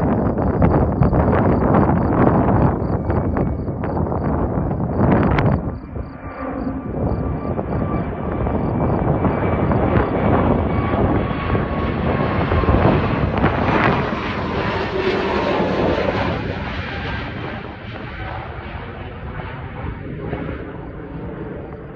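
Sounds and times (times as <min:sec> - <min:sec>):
jet engines at takeoff: 0:00.0 - 0:21.9.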